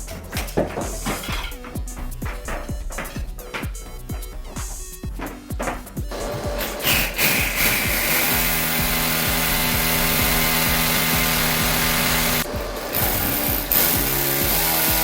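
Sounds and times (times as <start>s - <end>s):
power tool motor running: 6.1s - 15.0s.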